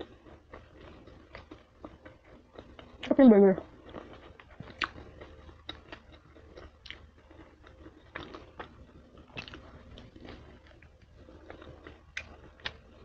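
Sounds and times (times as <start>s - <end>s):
person chewing a burger: 0.0s - 13.0s
mouth clicks and smacks: 3.8s - 12.9s.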